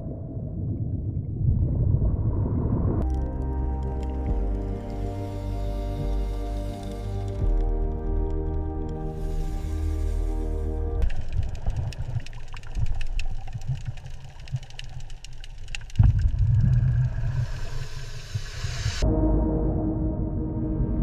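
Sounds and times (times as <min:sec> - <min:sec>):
music: 0:03.0 - 0:11.6, 0:19.0 - 0:21.0
mechanical engine-like rumble: 0:03.0 - 0:20.5
rapid clicking: 0:11.0 - 0:17.4.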